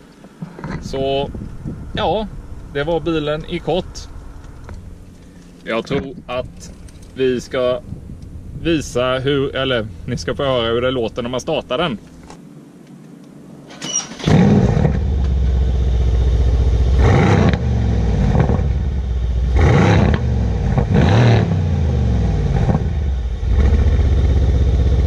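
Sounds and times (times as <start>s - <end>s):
car engine idling: 0.8s - 12.3s, 14.3s - 25.0s
engine cranking: 13.7s - 15.0s
engine revving: 14.0s - 25.0s.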